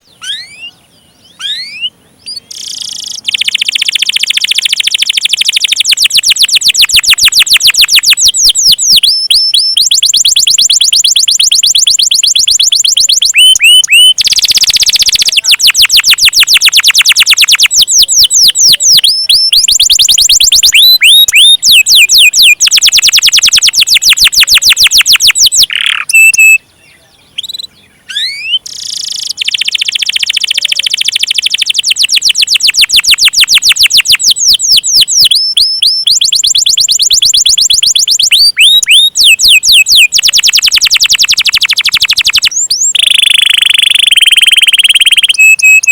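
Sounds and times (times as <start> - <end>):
canary singing trills: 0.0 - 45.9.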